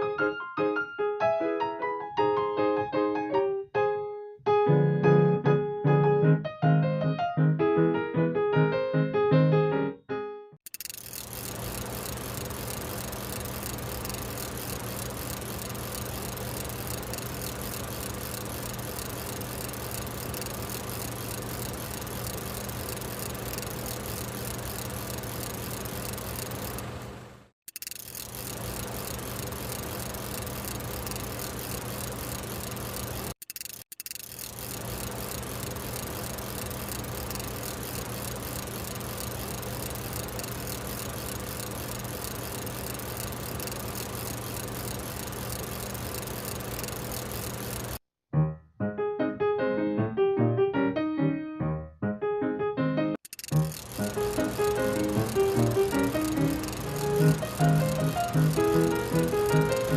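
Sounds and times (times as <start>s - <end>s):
drone rotors buzzing: 10.7s - 27.1s, 27.7s - 48.0s, 53.3s - 59.9s.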